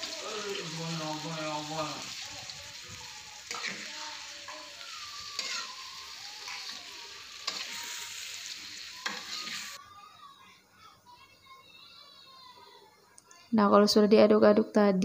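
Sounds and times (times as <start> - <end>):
food sizzling in a wok: 0.0 - 9.8
spatula scraping a wok: 3.5 - 4.7, 5.3 - 9.8.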